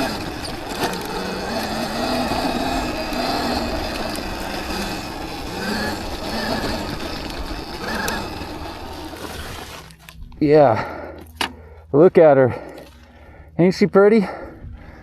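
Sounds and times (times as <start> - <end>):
electric motor whine: 0.0 - 10.2
wind and ground noise: 0.0 - 15.0.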